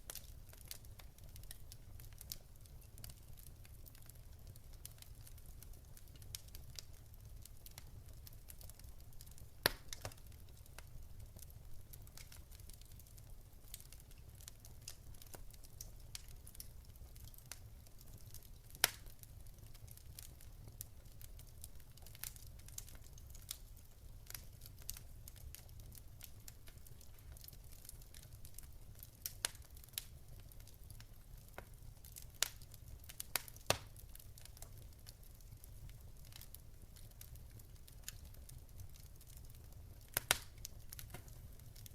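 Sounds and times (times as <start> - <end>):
fire crackling and popping: 0.0 - 41.9.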